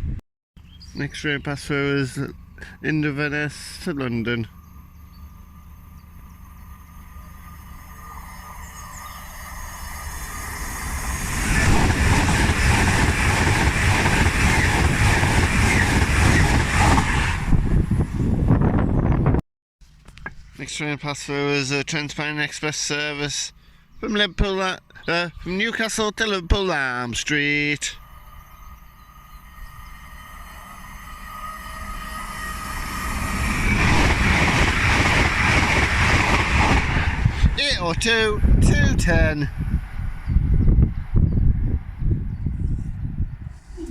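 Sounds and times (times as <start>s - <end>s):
train passing at speed: 4.5s - 19.2s, 27.2s - 43.8s.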